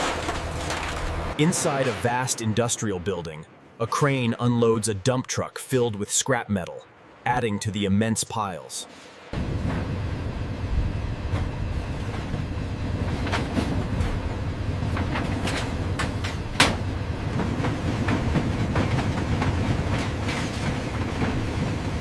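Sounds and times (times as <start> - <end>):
scrap metal shifting and dropping: 0.0 - 2.1
heavy machinery rumbling: 0.0 - 4.0, 9.3 - 22.0.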